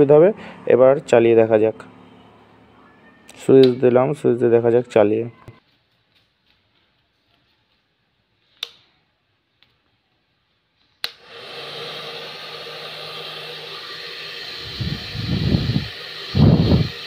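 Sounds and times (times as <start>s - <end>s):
hair dryer switch click: 11.0s - 11.3s
hair dryer blowing: 11.0s - 17.0s.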